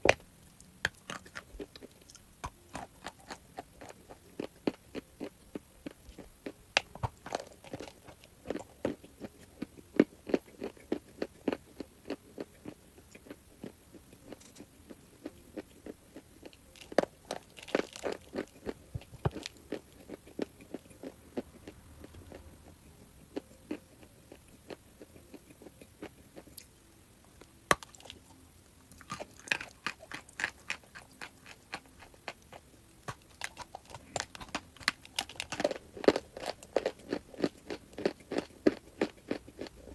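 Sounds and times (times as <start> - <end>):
chalk being chewed: 28.9 - 39.7.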